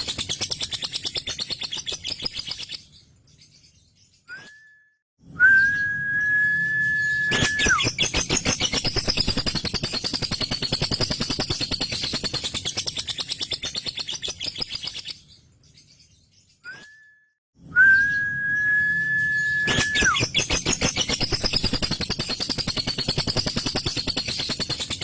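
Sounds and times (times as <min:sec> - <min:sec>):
lovebird whistled note: 0:05.4 - 0:08.0, 0:17.8 - 0:20.4
lovebird rattling chatter: 0:07.3 - 0:15.0, 0:19.7 - 0:25.0.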